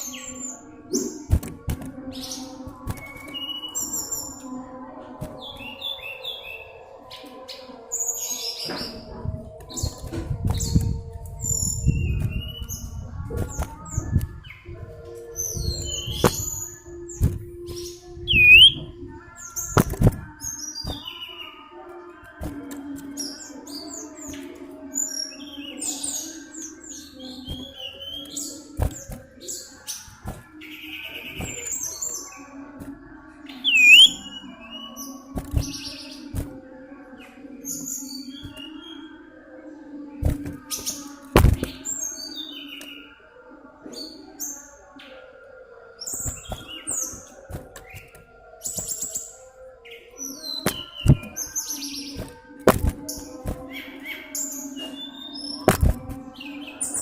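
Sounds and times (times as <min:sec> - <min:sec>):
bird chirping: 0:15.4 - 0:19.6, 0:33.5 - 0:34.5
bird whistled chirps: 0:18.3 - 0:18.9, 0:33.6 - 0:34.4.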